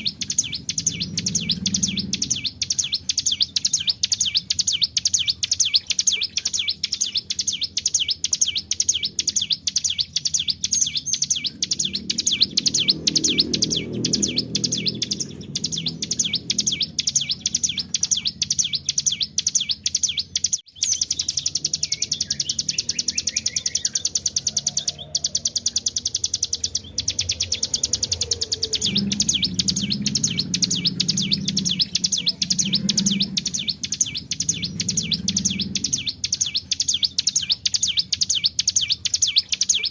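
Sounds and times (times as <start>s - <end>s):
bird singing fast trill: 0.0s - 39.9s
lower pitched sound: 11.0s - 19.8s, 20.8s - 38.2s.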